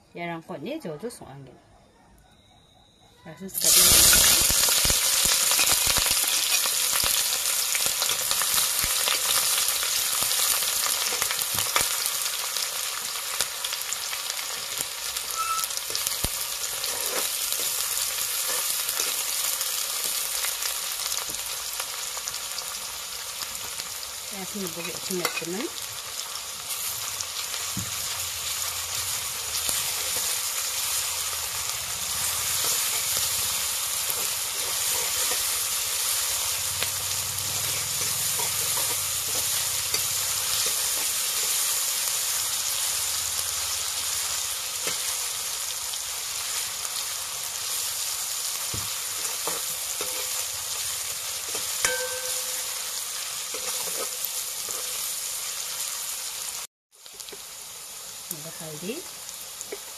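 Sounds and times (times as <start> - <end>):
onions sizzling in hot oil: 3.5 - 59.9
metal ladle scraping wok: 15.4 - 19.4, 28.4 - 42.1, 49.0 - 52.8, 53.4 - 55.1
ringing metal clink: 51.8 - 52.7.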